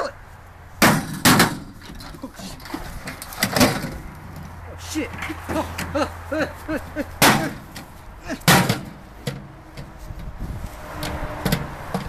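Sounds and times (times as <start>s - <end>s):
loud sharp bangs: 0.8s - 1.7s, 7.2s - 7.8s.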